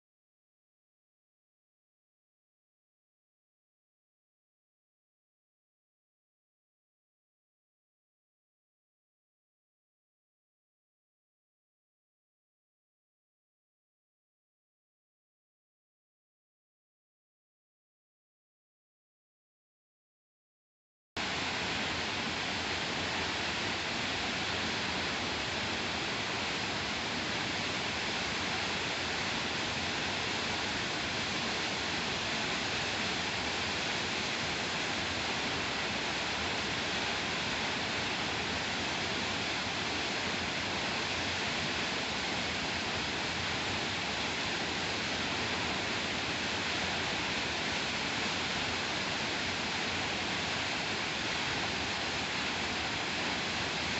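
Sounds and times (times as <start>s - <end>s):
waterfall rushing: 21.2s - 53.9s.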